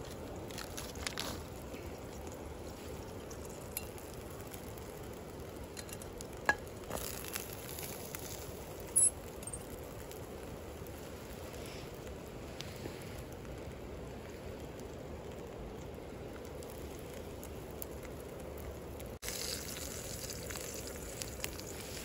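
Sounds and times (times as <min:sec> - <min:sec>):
food sizzling in a skillet: 0:19.2 - 0:22.0.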